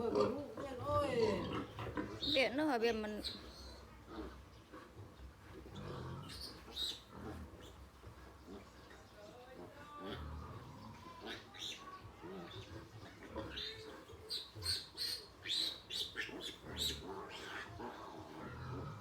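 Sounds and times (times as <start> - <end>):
sow grunting: 0.0 - 19.0
piglets squealing: 10.2 - 19.0.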